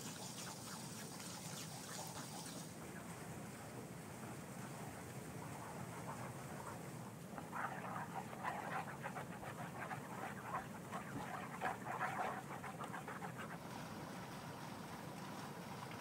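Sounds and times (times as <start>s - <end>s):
wooden spoon stirring wet paste: 7.4s - 13.7s.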